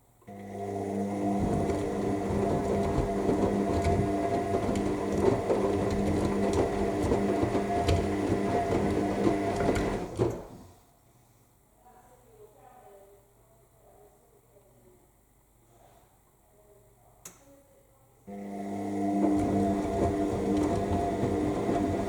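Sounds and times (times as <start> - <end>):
washing machine motor humming: 0.2 - 10.6, 18.3 - 22.0
wet load churning: 0.6 - 10.5, 18.5 - 22.0.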